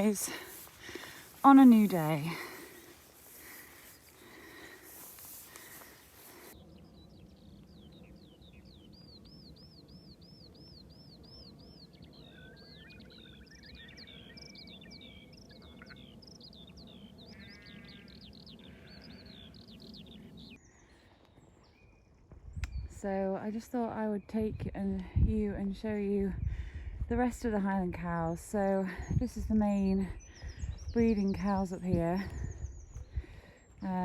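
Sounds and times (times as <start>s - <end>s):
wind-like hiss: 0.0s - 6.6s
songbirds singing: 0.0s - 34.0s.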